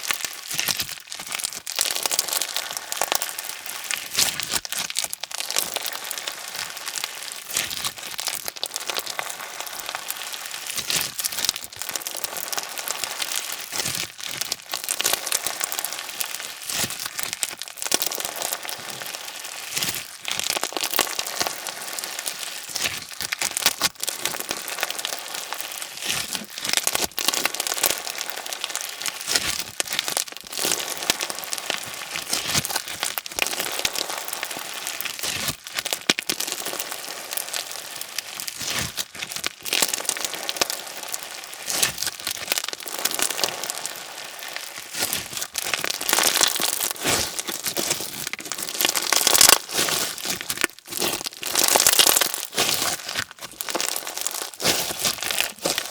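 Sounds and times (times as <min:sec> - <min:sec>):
crunchy slime crackling: 0:00.0 - 0:55.9.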